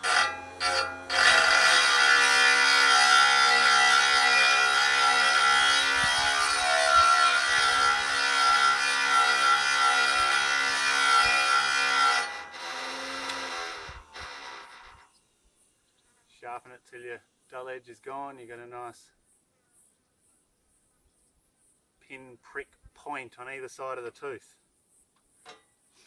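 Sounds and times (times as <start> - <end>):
grinding wheel motor whine: 0.0 - 15.1
gritty grinding hiss: 0.0 - 20.4.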